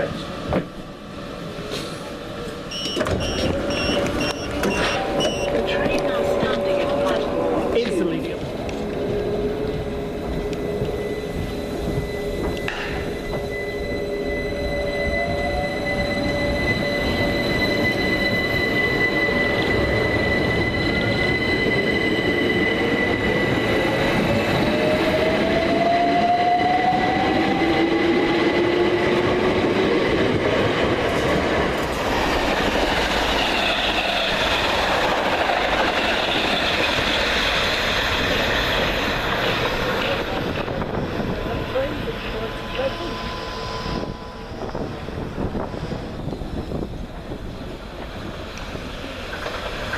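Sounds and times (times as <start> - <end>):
wheel and rail noise: 0.1 - 49.9
steady high whine: 8.7 - 25.2
electric train motor whine: 32.0 - 47.4.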